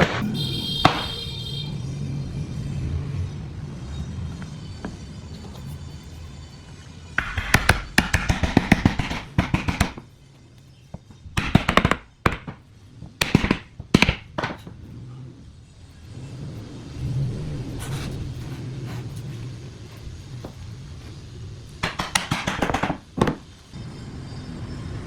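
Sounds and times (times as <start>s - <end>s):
hand tool knocking on wood: 7.2s - 10.0s.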